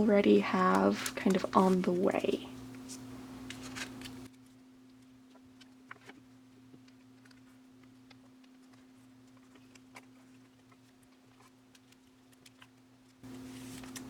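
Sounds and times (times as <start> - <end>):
steady low hum: 0.0 - 4.3
plastic sleeves rustling: 0.0 - 14.0.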